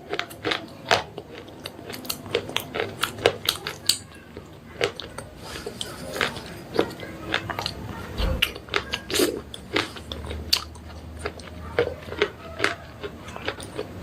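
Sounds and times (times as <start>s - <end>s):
pencils crunching in teeth: 0.0s - 7.8s, 8.4s - 14.0s
low bump: 8.1s - 8.5s.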